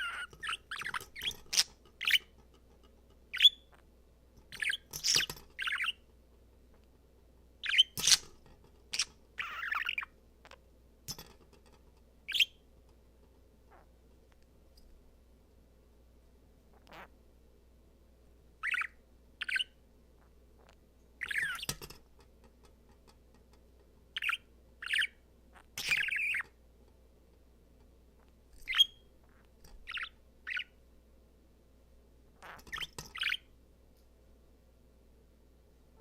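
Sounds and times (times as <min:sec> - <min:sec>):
budgerigar chirping: 0:00.0 - 0:02.3, 0:03.3 - 0:03.8, 0:04.5 - 0:06.0, 0:07.6 - 0:08.3, 0:08.9 - 0:10.1, 0:12.3 - 0:12.6, 0:18.6 - 0:19.8, 0:21.2 - 0:21.7, 0:24.2 - 0:26.5, 0:28.6 - 0:30.8, 0:32.4 - 0:33.5.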